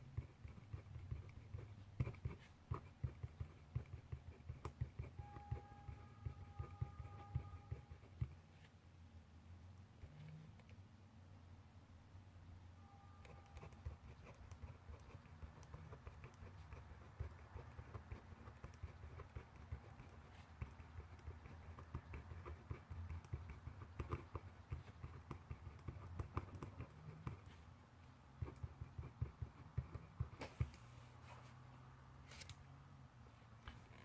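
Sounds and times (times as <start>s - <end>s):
pen scratching and tapping on paper: 0.0s - 8.4s, 13.2s - 27.6s, 28.2s - 30.9s.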